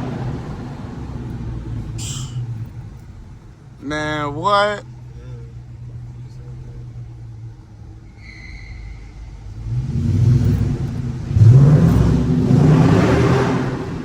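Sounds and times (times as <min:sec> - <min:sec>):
sports car engine revving: 0:04.9 - 0:14.0.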